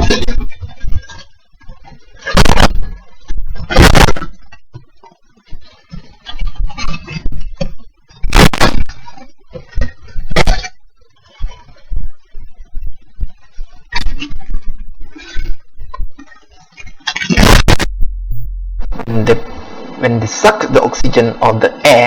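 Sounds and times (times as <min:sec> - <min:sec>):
loud sharp cracks: 0:17.3 - 0:17.9.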